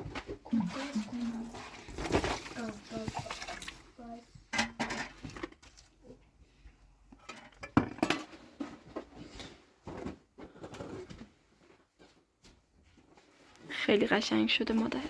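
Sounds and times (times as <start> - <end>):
objects knocking and clattering: 0.0 - 6.2, 7.1 - 11.4.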